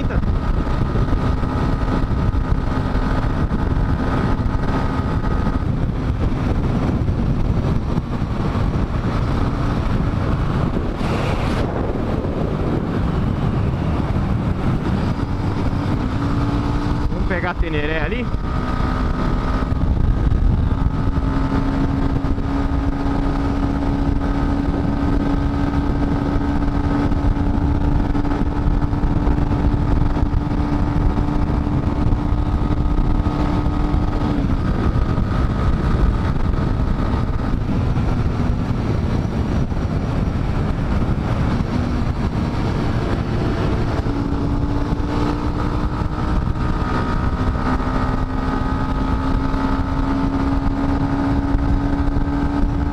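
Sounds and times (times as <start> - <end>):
motorcycle engine running: 0.0 - 52.9
rushing noise: 3.0 - 22.4.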